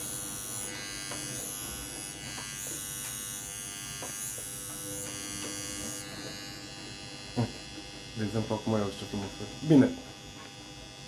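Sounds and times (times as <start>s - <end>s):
small electric motor buzzing: 0.0s - 11.0s.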